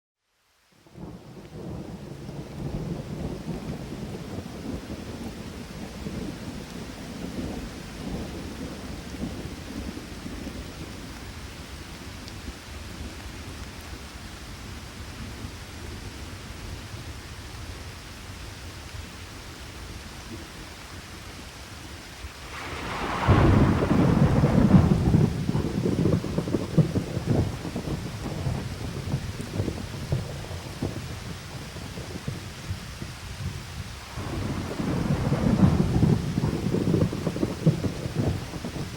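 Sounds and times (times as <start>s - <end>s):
steady rain: 0.2s - 38.9s
rolling thunder: 0.9s - 11.4s, 22.0s - 38.9s
loud thunderclap: 1.0s - 10.7s, 22.3s - 38.9s.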